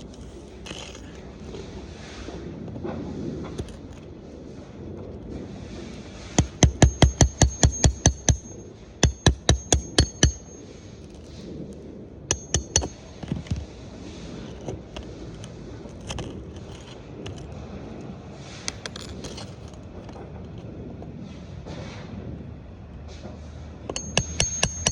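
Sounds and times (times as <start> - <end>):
hammer striking metal: 6.4 - 10.7, 12.3 - 13.0, 23.9 - 24.9.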